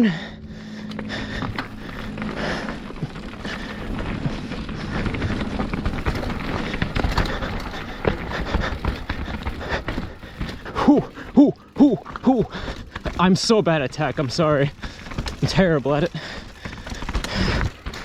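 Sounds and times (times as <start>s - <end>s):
bike chain and frame rattling: 0.0s - 18.0s
tyres crunching over dirt and rocks: 0.1s - 18.0s.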